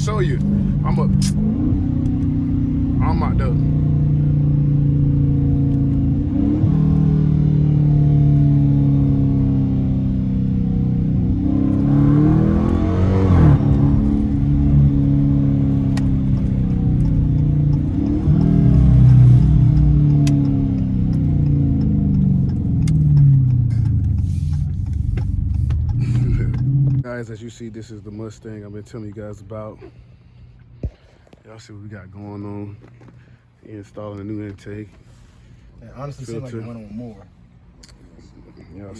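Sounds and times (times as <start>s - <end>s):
car engine accelerating hard: 0.0s - 27.1s.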